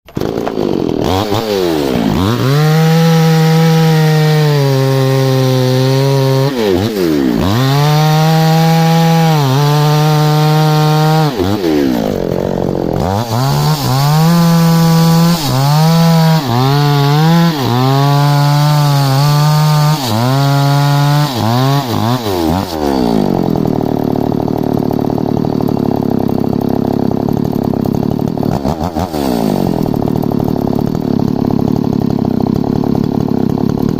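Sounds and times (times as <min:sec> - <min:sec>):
chainsaw engine revving: 0:00.1 - 0:33.9.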